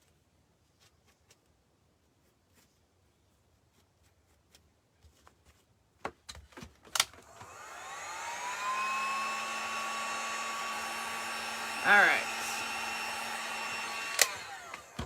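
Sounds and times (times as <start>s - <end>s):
hair dryer blowing: 7.2s - 15.0s.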